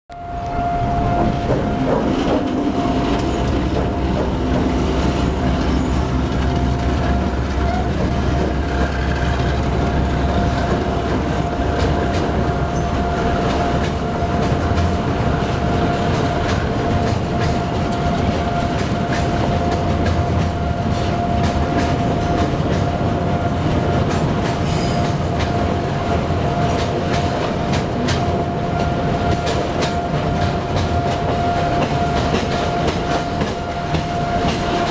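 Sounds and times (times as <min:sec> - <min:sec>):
high-pitched whine: 0:00.1 - 0:27.6
low train rumble: 0:00.1 - 0:34.9
train wheels clattering on rails: 0:00.9 - 0:34.9.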